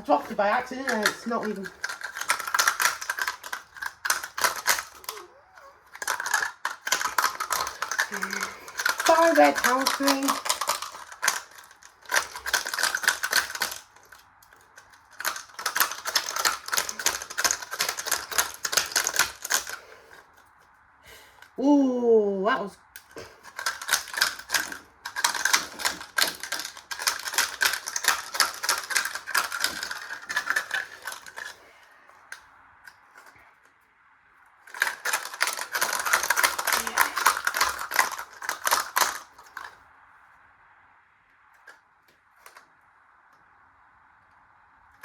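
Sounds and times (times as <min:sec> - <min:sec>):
coin clattering in washing machine: 0:00.0 - 0:13.9, 0:15.1 - 0:19.8, 0:23.5 - 0:31.5, 0:34.7 - 0:39.3.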